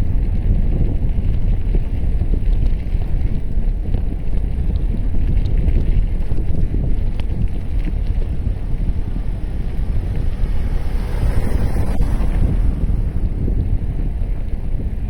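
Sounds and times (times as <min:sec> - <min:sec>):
rolling tyre noise: 0:00.0 - 0:15.0
wind rumble on microphone: 0:00.0 - 0:15.0
faint ticks: 0:01.2 - 0:08.9.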